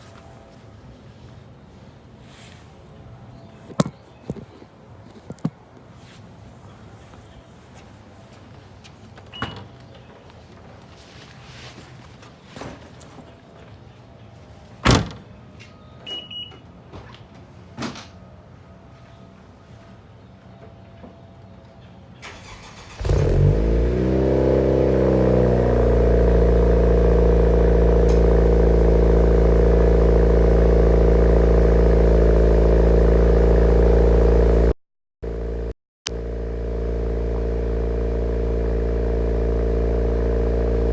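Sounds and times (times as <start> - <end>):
car engine starting and idling: 22.2 - 40.9.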